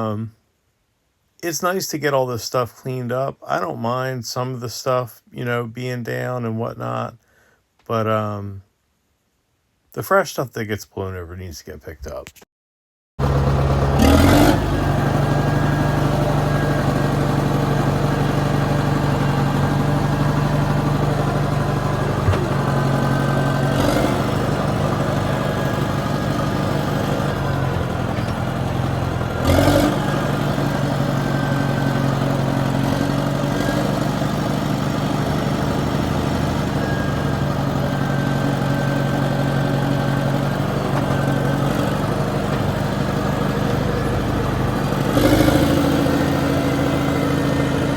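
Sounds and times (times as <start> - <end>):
heavy machinery engine running: 13.2 - 47.9.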